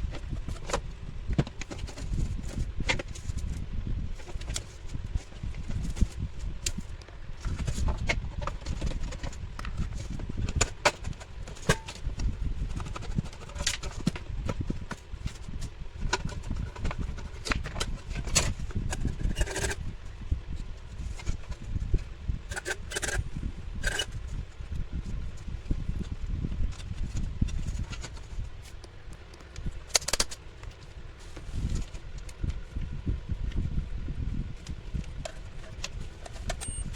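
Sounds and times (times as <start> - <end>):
small parts and tools clicking: 28.8 - 30.8, 35.2 - 36.9.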